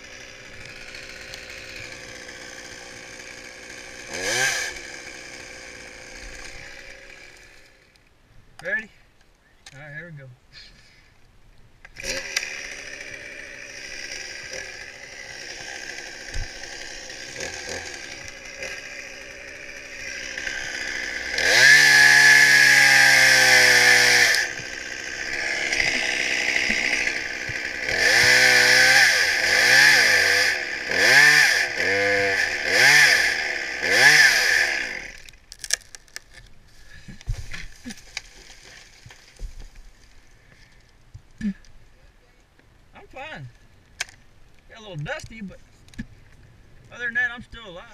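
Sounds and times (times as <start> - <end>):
chainsaw idling and revving: 0.0 - 7.9, 12.0 - 39.5.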